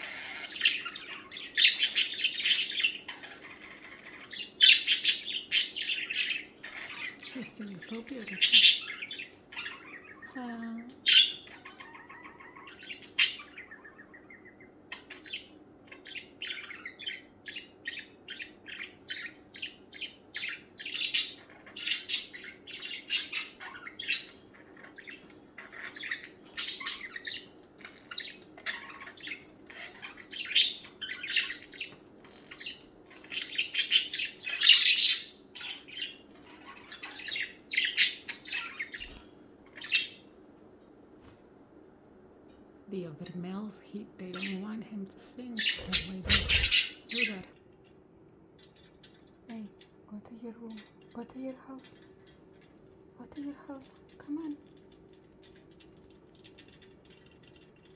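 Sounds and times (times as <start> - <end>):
budgerigar warbling: 0.0 - 7.4, 8.0 - 10.4, 11.0 - 19.7, 45.6 - 47.4.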